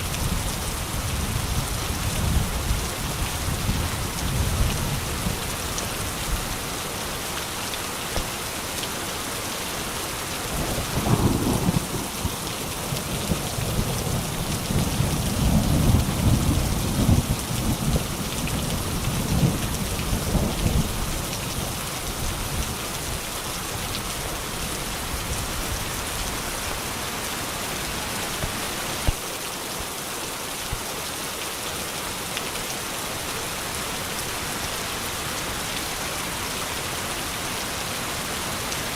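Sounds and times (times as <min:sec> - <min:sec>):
steady rain falling: 0:00.0 - 0:38.9
rolling thunder: 0:10.5 - 0:12.6
sharp thunder crack: 0:10.6 - 0:12.4.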